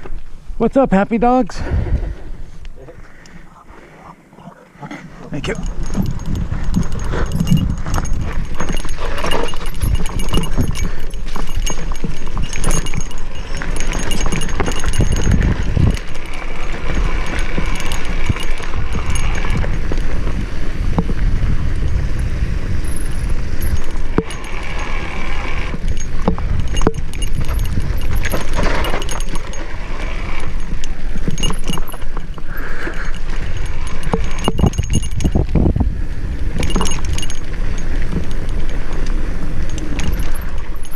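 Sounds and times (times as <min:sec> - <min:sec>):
wind rumble on microphone: 0:01.6 - 0:02.9, 0:05.4 - 0:40.9
mountain bike rattling and clicking: 0:05.4 - 0:40.9.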